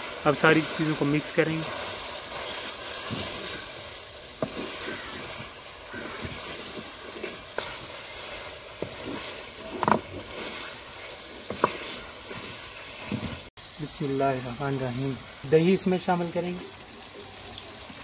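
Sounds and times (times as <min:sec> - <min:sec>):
chicken frying in oil: 0:00.0 - 0:18.0
wooden spoon scraping and knocking pan: 0:00.4 - 0:03.7, 0:04.3 - 0:13.5.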